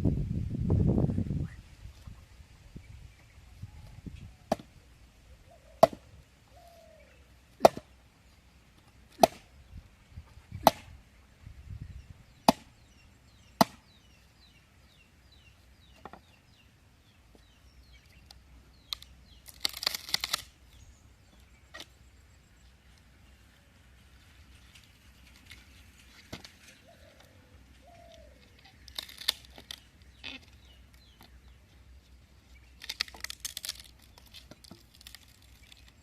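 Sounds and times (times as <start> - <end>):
blade chopping on wood: 7.6 - 7.9, 9.1 - 9.4, 10.6 - 10.9, 12.4 - 12.7, 13.6 - 13.8.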